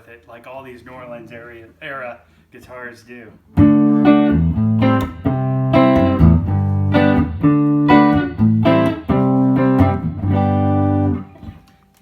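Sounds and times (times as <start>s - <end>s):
clean electric guitar strumming chords: 3.6s - 11.8s.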